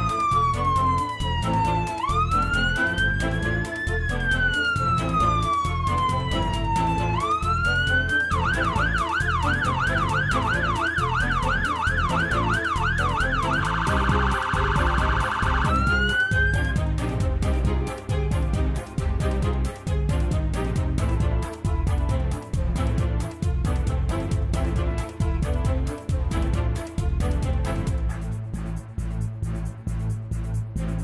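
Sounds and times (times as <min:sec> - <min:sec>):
electronic siren wailing and yelping: 0:00.0 - 0:16.8.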